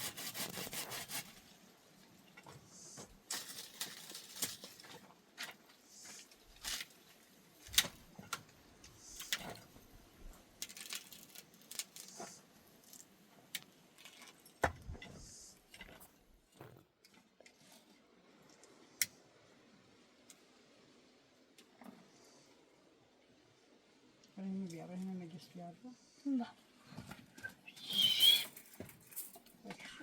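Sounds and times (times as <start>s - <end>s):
soft rasping scrapes: 0.0s - 1.4s.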